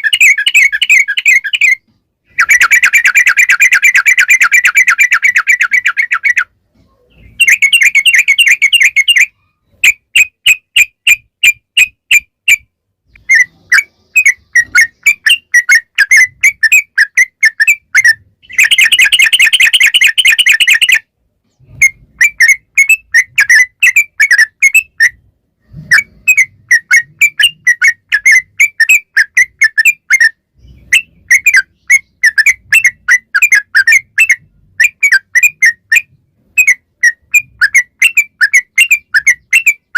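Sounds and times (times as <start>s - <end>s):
bird singing whistle notes: 7.1s - 21.1s, 25.9s - 39.9s.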